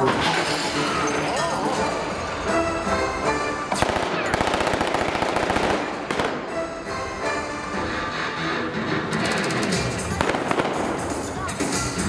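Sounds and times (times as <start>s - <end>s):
show music: 0.0s - 12.0s
staged gunfire popping: 3.7s - 6.7s, 10.2s - 11.5s.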